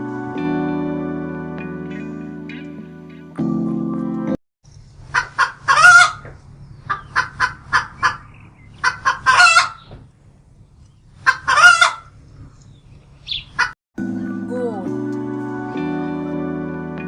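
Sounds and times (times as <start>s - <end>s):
hen cackling: 5.1s - 6.3s, 6.9s - 9.9s, 11.2s - 12.2s, 13.3s - 13.8s.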